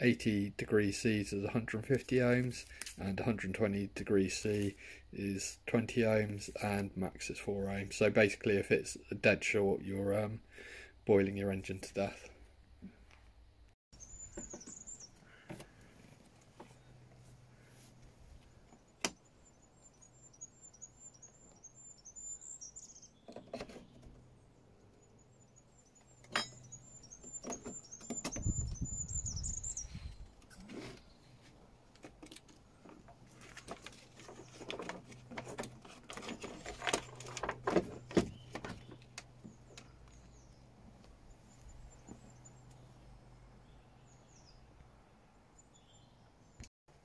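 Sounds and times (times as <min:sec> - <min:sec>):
small bird chirping: 0:14.0 - 0:15.5, 0:18.5 - 0:31.5, 0:38.1 - 0:44.8
clicks and knocks of parts handled: 0:31.9 - 0:40.2.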